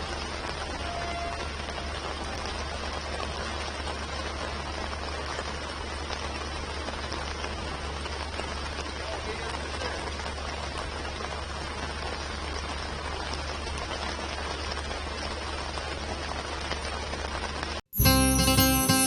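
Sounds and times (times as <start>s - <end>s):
heavy rain hissing: 0.0s - 19.0s
strummed acoustic guitar music: 18.0s - 19.0s.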